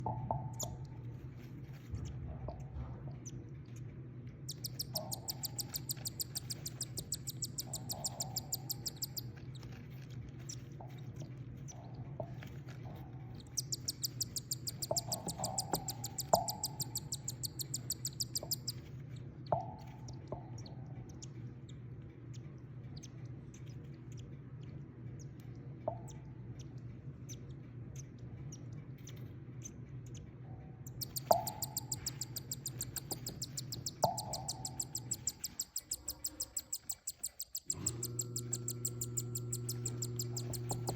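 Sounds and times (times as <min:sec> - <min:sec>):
chicks chirping rapidly: 0:04.5 - 0:09.7, 0:13.4 - 0:18.9, 0:30.9 - 0:37.7, 0:39.2 - 0:40.9.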